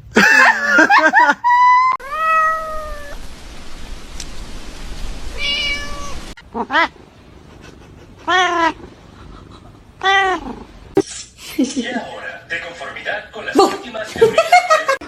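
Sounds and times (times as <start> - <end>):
cat meowing: 2.0 - 3.2, 5.3 - 6.9, 8.2 - 8.9, 10.0 - 10.7
background hiss: 2.0 - 11.6.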